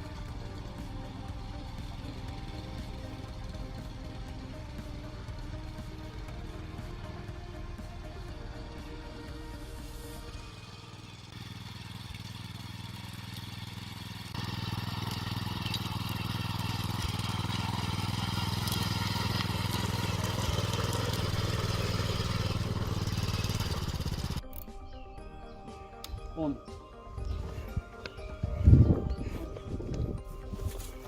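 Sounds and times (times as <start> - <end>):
cultivator engine running: 0.0 - 24.4.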